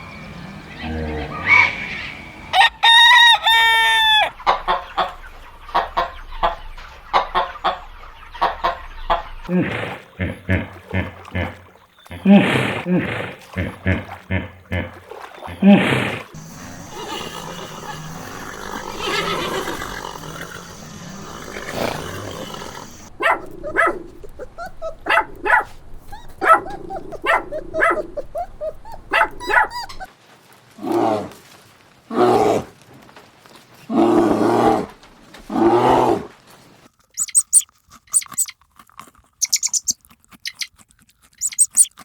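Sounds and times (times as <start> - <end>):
animal calls: 0.5 - 30.1, 37.2 - 38.5, 39.4 - 40.8, 41.4 - 42.0.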